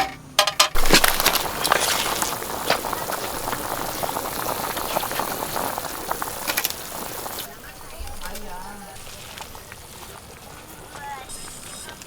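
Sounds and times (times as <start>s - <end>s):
food sizzling in a hot pan: 0.7s - 10.0s.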